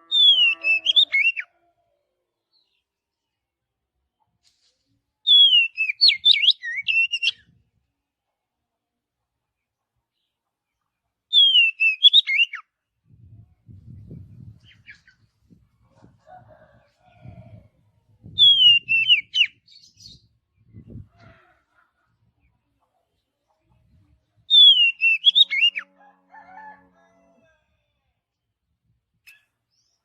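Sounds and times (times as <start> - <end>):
bird singing whistled phrases: 0.2 - 1.5, 5.3 - 7.4, 11.3 - 12.6, 18.4 - 20.2, 24.5 - 25.8.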